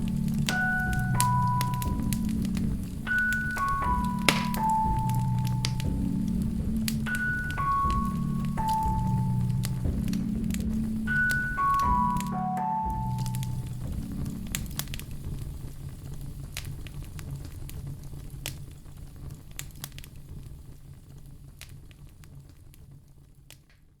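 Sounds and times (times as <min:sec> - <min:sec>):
low rumble: 0:00.0 - 0:17.4
fireplace fire crackling and popping: 0:00.0 - 0:24.0.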